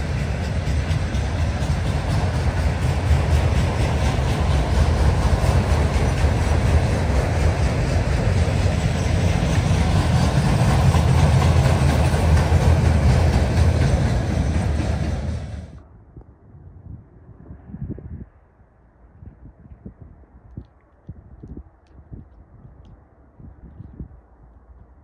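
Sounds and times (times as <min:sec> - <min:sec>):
train cars rumbling past: 0:00.0 - 0:15.9.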